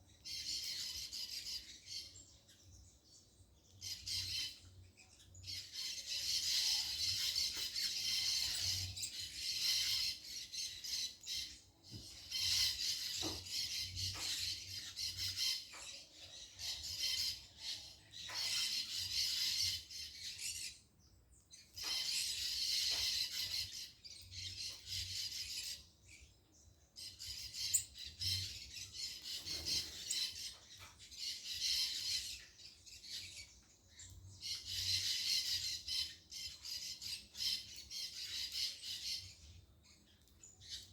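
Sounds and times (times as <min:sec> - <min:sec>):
birds squawking: 0:27.4 - 0:30.8.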